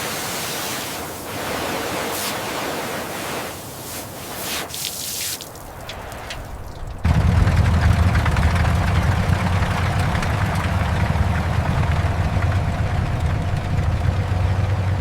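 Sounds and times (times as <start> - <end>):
large vehicle engine idling: 6.8 - 15.0.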